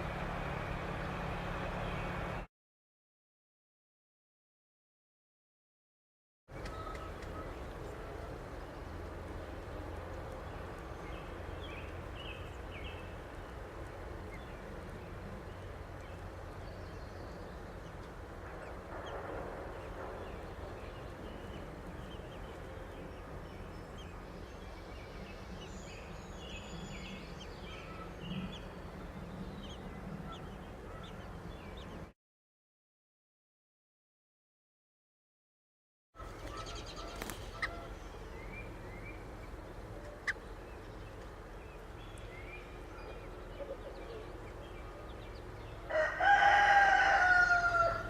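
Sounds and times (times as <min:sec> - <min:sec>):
steady low hum: 0:06.6 - 0:32.1, 0:36.2 - 0:45.9
chicks peeping: 0:17.2 - 0:32.0, 0:36.3 - 0:45.5.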